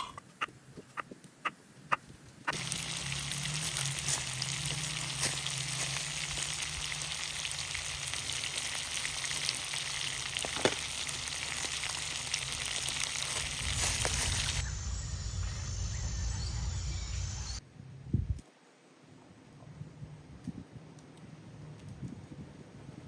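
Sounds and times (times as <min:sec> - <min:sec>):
sizzling crackling hiss: 0:02.5 - 0:17.6.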